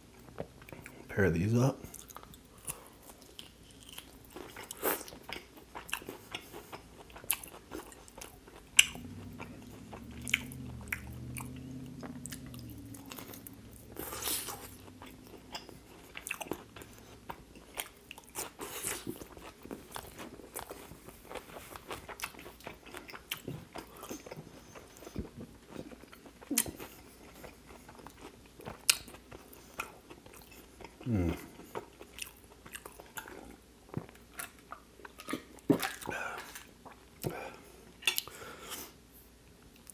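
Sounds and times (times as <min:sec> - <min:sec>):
chewing and crunching: 0:00.0 - 0:38.9
closed-mouth hum: 0:08.3 - 0:17.5.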